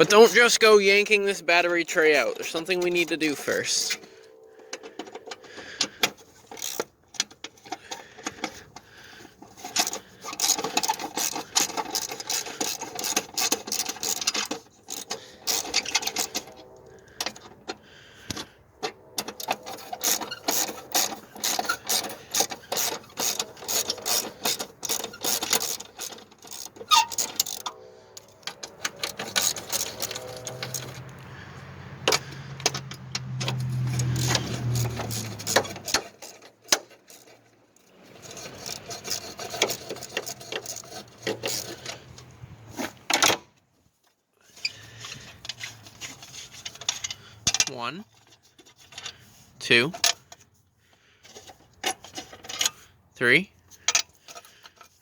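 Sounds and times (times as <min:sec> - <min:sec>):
ratchet wrench clicking: 0:06.4 - 0:06.9, 0:09.5 - 0:16.5, 0:19.2 - 0:31.1, 0:33.3 - 0:42.2.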